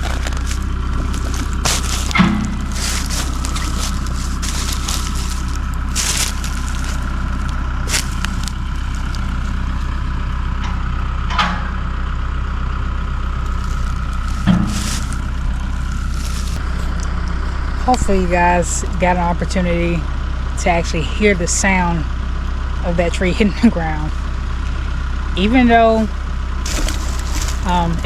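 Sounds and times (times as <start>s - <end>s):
cracks and crunches: 0.0s - 10.0s, 13.4s - 18.2s, 26.7s - 28.0s
tractor engine running: 0.0s - 28.0s.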